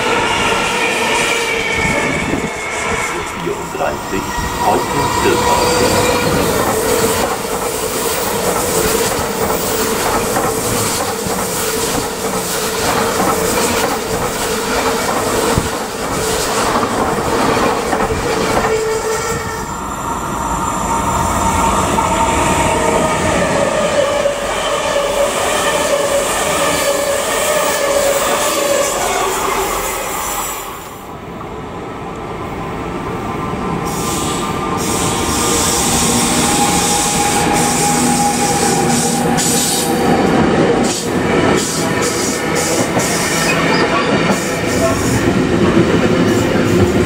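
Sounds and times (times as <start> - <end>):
train whine: 0.0 - 47.0
train wheels clattering on rails: 4.5 - 19.4, 33.8 - 47.0.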